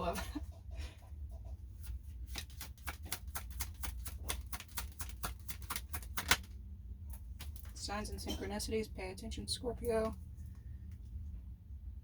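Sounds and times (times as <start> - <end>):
cards clicking and tapping: 2.2 - 6.5.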